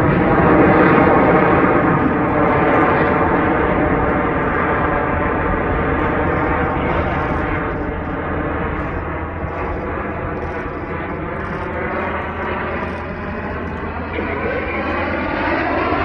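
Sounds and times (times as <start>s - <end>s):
jet engines flying overhead: 0.0s - 16.0s.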